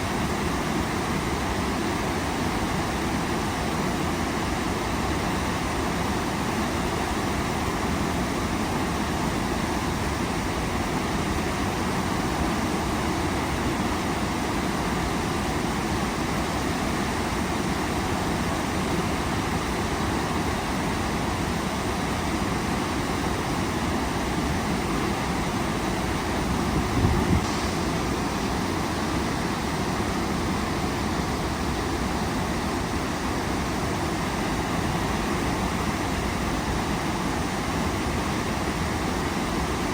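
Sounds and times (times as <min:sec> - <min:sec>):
waterfall rushing: 0:16.2 - 0:39.9.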